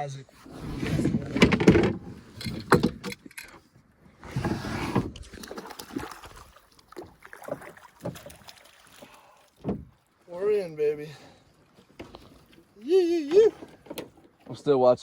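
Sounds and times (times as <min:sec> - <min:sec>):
fishing gear knocking and rattling: 0:01.2 - 0:03.6.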